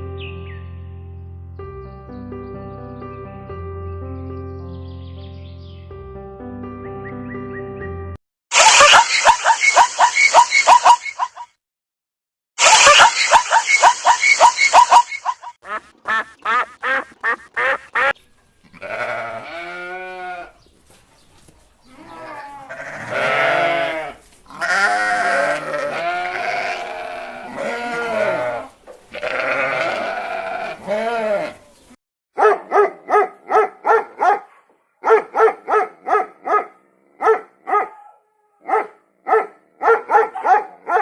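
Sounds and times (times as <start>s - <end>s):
farm animal calling: 8.6s - 11.4s, 12.6s - 32.0s.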